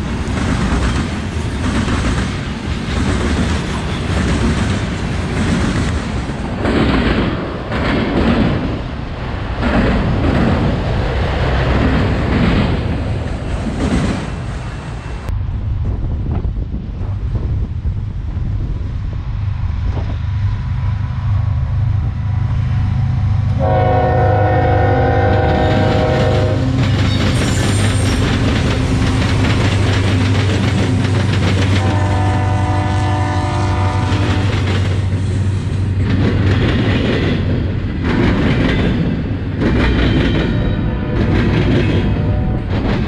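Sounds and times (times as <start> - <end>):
train wheels clattering: 0.0 - 14.7, 25.0 - 32.8, 33.5 - 43.0
locomotive engine rumbling: 0.0 - 43.0
train air horn blasts: 23.6 - 27.0, 31.7 - 34.7, 42.1 - 42.7.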